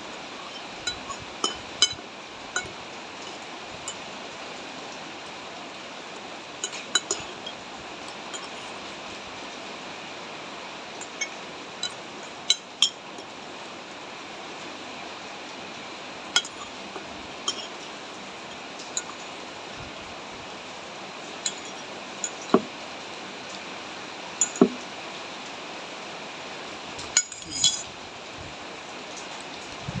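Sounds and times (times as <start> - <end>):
falling rain hiss: 0.0 - 30.0
spoon clinking against bowl: 0.2 - 2.0, 2.6 - 4.0, 6.6 - 8.8, 11.0 - 13.3, 16.4 - 17.8, 18.5 - 19.3, 21.4 - 22.7, 24.4 - 24.8, 27.2 - 27.9.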